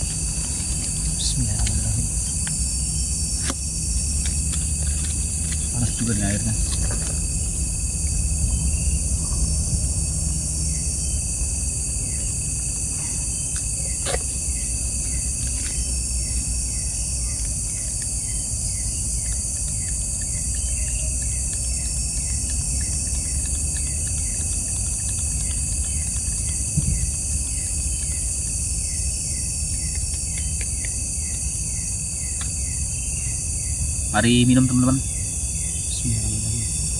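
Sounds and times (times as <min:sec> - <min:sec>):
low rumble: 0:00.0 - 0:13.8
insect chirping: 0:00.0 - 0:36.9
insects shrilling: 0:00.0 - 0:36.9.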